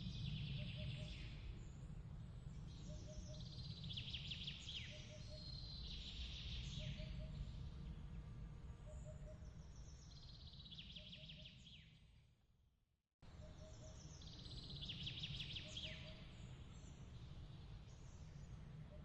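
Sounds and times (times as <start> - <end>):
low steady rumble: 0.0 - 10.5
faint bird chirps and trills: 0.0 - 12.2, 13.2 - 19.0.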